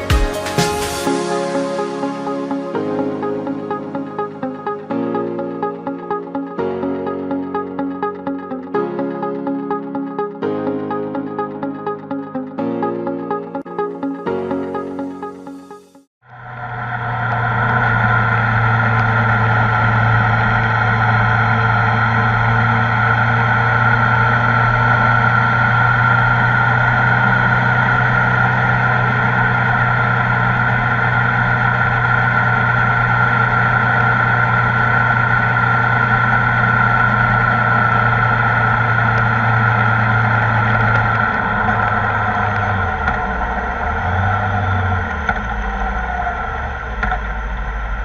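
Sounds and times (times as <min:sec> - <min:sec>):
motorcycle engine cruising: 0:16.3 - 0:48.0.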